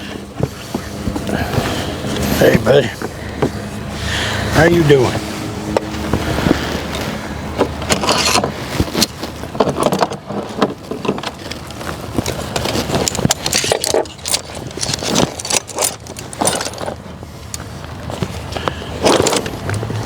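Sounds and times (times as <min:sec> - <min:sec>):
metal tools and parts clanking: 0:07.6 - 0:17.7, 0:18.6 - 0:19.8.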